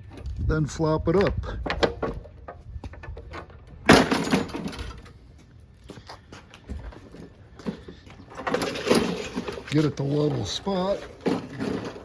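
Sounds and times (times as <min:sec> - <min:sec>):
lawn mower clatter: 0:01.8 - 0:05.2, 0:07.1 - 0:12.0.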